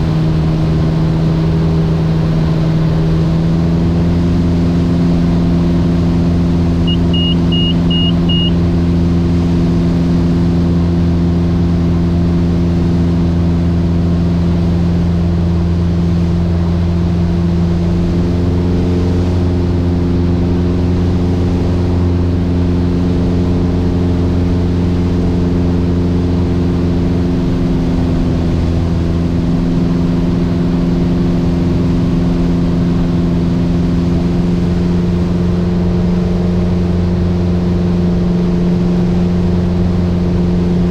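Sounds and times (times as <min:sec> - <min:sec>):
aircraft engine and propeller drone: 0:00.0 - 0:40.9
short high electronic beeps: 0:06.8 - 0:08.6.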